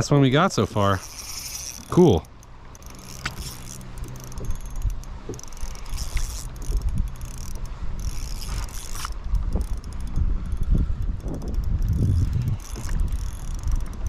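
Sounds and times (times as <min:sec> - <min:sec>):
fishing reel whirring and clicking: 0:00.0 - 0:14.0.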